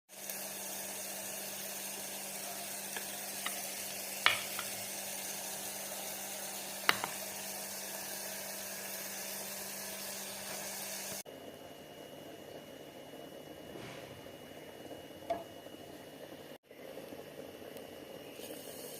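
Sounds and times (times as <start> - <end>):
food sizzling in hot oil: 0.1 - 11.2, 18.0 - 18.9.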